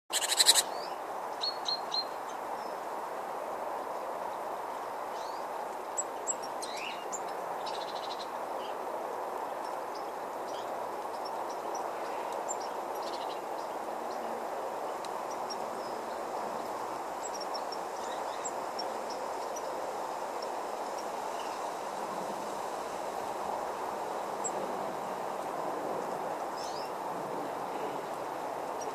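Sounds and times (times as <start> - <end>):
small birds chirping: 0.1 - 2.8, 4.3 - 21.8, 26.0 - 27.0
background hiss: 0.1 - 28.9.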